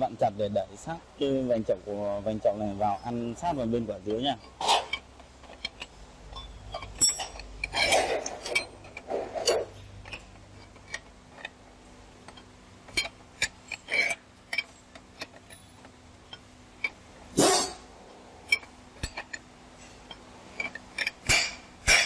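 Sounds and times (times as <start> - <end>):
hand tools clicking on metal: 3.0 - 11.6, 12.2 - 17.8, 18.5 - 22.0.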